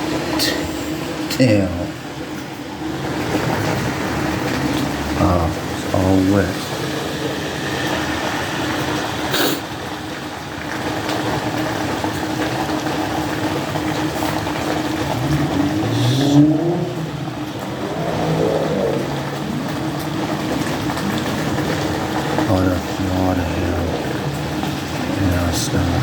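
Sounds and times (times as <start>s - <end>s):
rain hissing: 0.0s - 26.0s
wet street noise: 0.0s - 26.0s
car engine revving: 2.7s - 10.0s, 12.9s - 26.0s.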